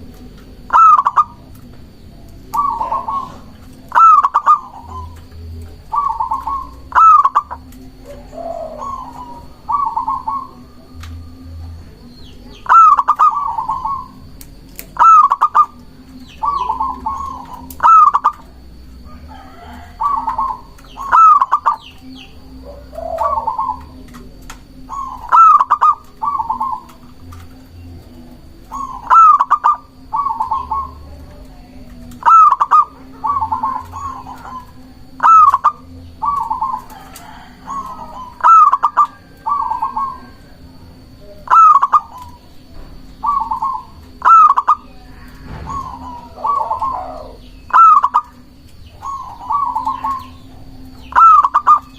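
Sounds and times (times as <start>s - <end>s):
dove cooing: 0.0s - 51.9s
faint steady hum: 0.0s - 51.9s.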